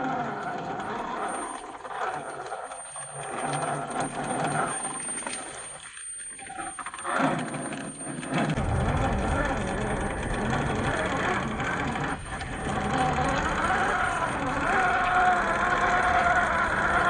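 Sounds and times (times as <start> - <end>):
toy car electric motor whirring: 0.0 - 17.0.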